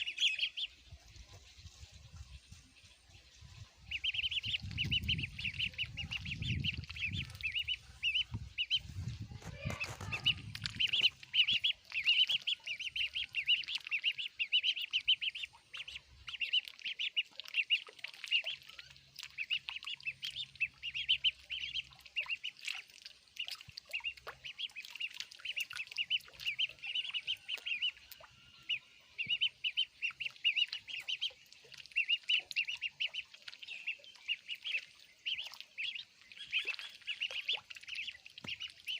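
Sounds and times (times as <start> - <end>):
ducklings peeping: 0.0 - 38.9.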